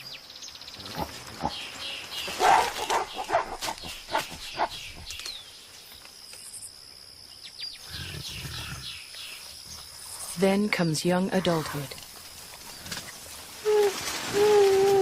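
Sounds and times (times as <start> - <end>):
gorillas grunting and screaming: 0.8 - 5.1.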